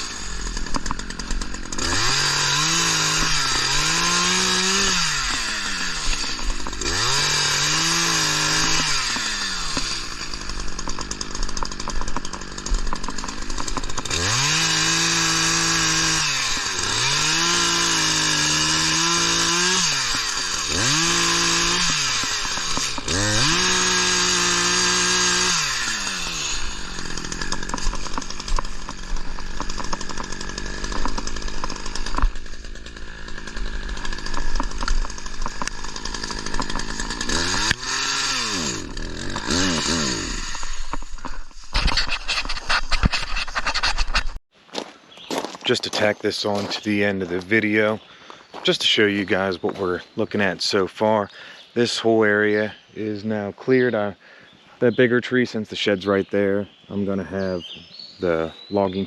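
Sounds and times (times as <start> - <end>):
chainsaw revving: 0.0 - 44.4.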